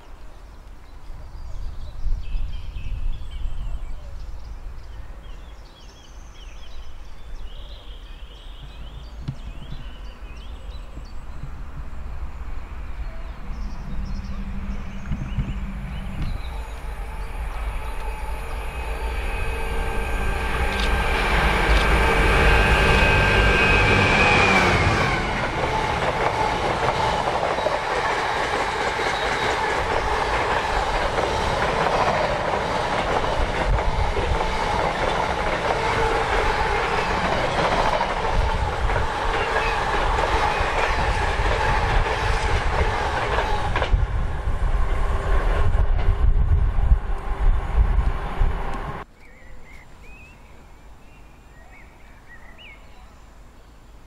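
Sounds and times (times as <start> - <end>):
train passing: 4.2 - 49.1
wheels rumbling and rattling on track: 6.5 - 49.1.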